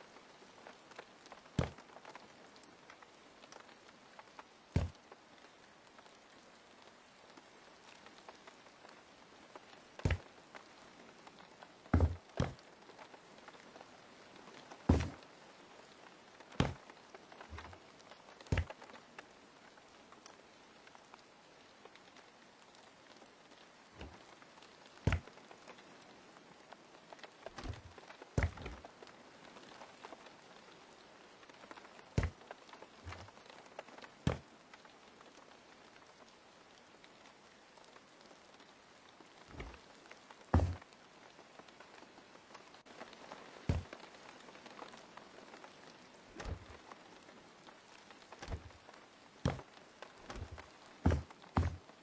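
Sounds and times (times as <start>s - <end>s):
light knocks and taps: 1.6s - 1.8s, 4.8s - 5.0s, 10.0s - 10.3s, 12.0s - 12.6s, 14.9s - 15.2s, 16.6s - 16.9s, 17.5s - 17.8s, 18.5s - 18.8s, 25.1s - 25.3s, 27.6s - 28.9s, 33.0s - 33.3s, 39.5s - 39.8s, 40.6s - 40.8s, 43.7s - 44.0s, 46.4s - 46.8s, 48.4s - 48.8s, 49.5s - 51.9s
dull low thump: 4.8s - 5.0s, 12.0s - 12.6s, 14.9s - 15.2s, 16.6s - 16.8s, 17.5s - 17.8s, 18.5s - 18.7s, 25.1s - 25.3s, 27.6s - 28.8s, 33.0s - 33.3s, 39.5s - 39.8s, 40.6s - 40.8s, 46.4s - 46.8s, 48.4s - 48.7s, 50.3s - 51.8s.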